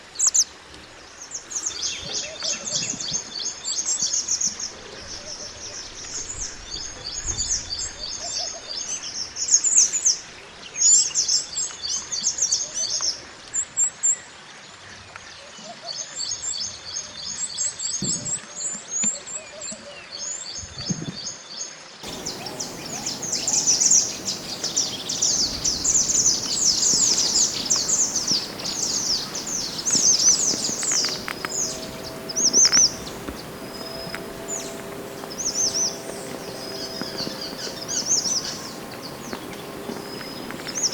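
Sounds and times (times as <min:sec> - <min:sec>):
songbird twittering and chirping: 0:22.0 - 0:40.9.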